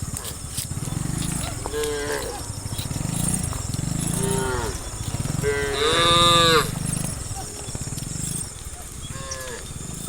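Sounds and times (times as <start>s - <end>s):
cattle mooing: 1.5s - 2.5s, 4.0s - 7.3s, 9.1s - 10.0s.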